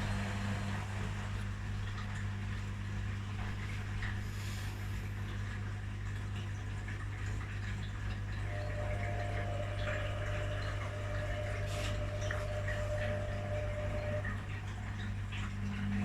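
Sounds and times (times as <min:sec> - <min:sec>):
low pump hum: 0:00.0 - 0:16.0
washing machine water sloshing: 0:00.0 - 0:16.0
thin high whine: 0:08.4 - 0:14.4.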